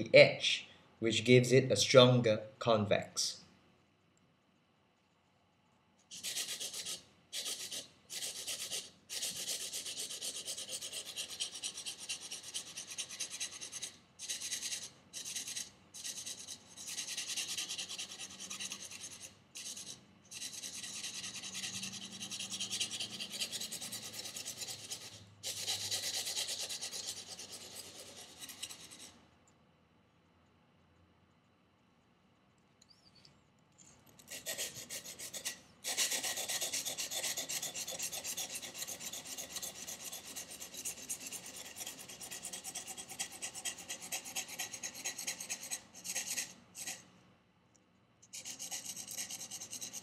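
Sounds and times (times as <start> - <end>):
knife scraping on sandpaper: 6.1 - 29.2, 34.2 - 47.0, 48.3 - 50.0.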